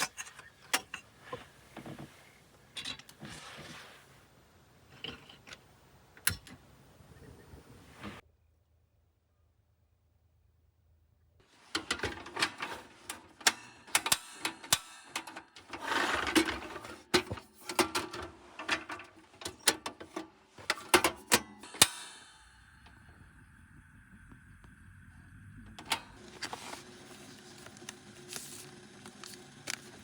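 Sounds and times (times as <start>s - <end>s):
faint steady hum: 20.1s - 30.0s.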